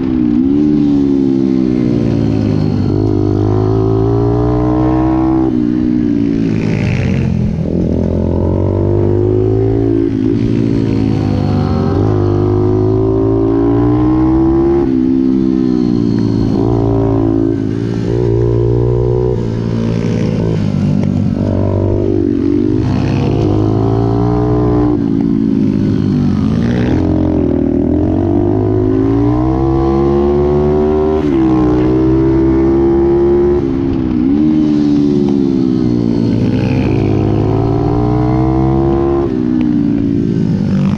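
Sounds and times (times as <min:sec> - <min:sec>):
pit bike engine revving: 0:00.0 - 0:40.9.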